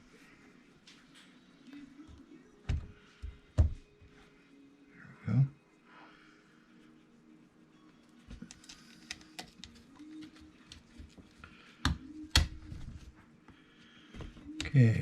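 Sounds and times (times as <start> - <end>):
small parts clicking and tapping: 8.4 - 11.2.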